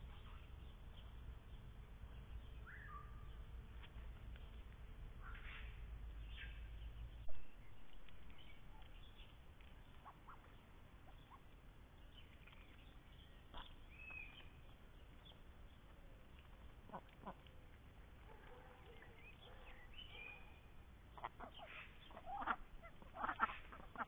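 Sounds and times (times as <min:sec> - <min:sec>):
small birds chirping: 0:00.0 - 0:24.0
ducks quacking: 0:21.2 - 0:24.0.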